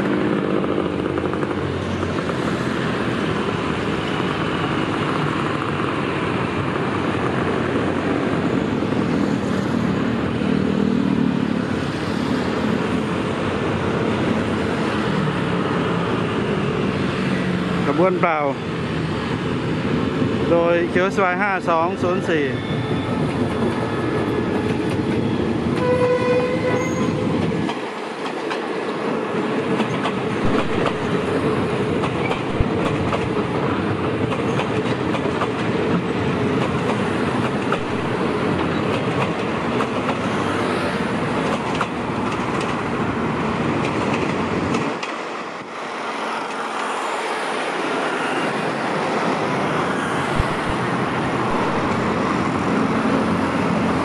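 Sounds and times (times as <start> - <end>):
train wheels rumbling on rail: 0.0 - 54.0
wheels clacking over rail joints: 27.2 - 40.5, 41.1 - 45.4.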